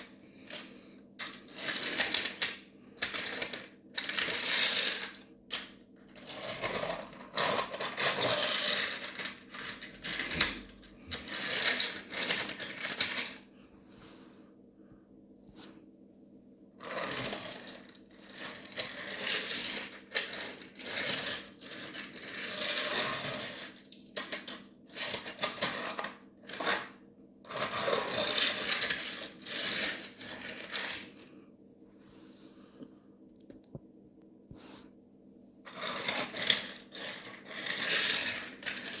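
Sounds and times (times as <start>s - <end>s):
toy trains rattling on track: 6.2s - 13.4s, 16.9s - 23.8s, 27.6s - 31.2s, 35.7s - 39.0s.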